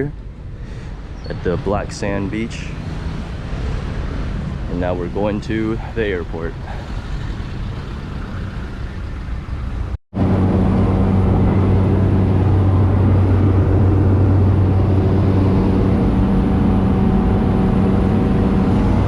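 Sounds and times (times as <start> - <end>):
vehicle engine drone: 0.0 - 19.0.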